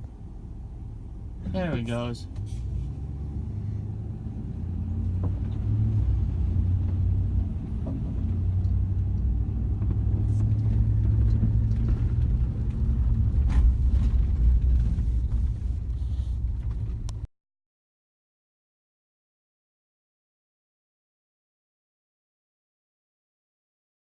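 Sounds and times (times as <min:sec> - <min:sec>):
vehicle engine running: 0:00.0 - 0:17.3.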